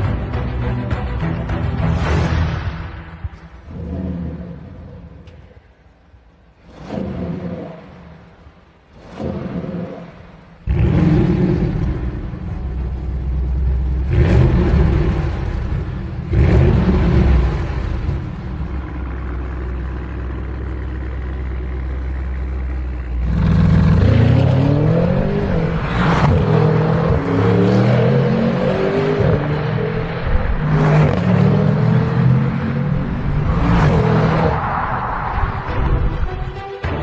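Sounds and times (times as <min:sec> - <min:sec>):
car engine revving: 0:06.5 - 0:34.6.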